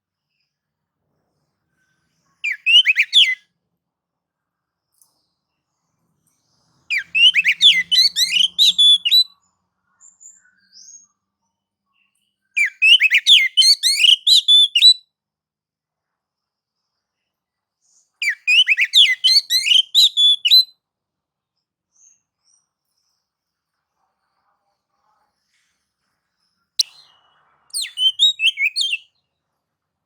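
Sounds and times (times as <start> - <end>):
bird singing whistled notes: 2.4 - 3.4, 6.9 - 9.4, 12.6 - 15.0, 18.2 - 20.7, 26.8 - 29.2.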